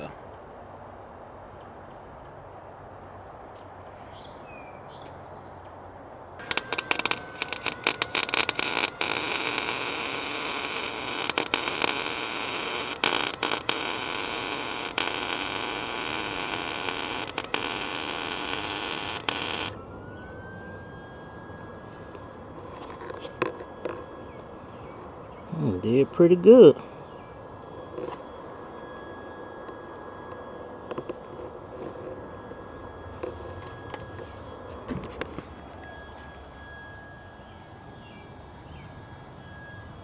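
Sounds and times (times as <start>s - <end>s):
arc welder crackling: 6.4s - 19.9s.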